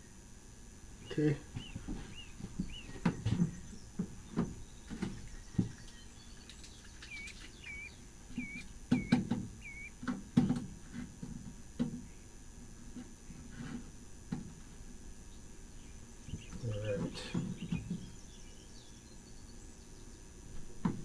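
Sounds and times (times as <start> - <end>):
small bird chirping: 1.0 - 10.2, 15.3 - 20.3
light knocks and taps: 8.4 - 12.0.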